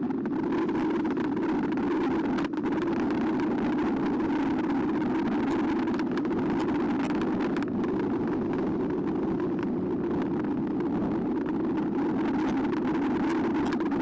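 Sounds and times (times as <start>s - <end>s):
wind and tyres rushing: 0.0s - 14.0s.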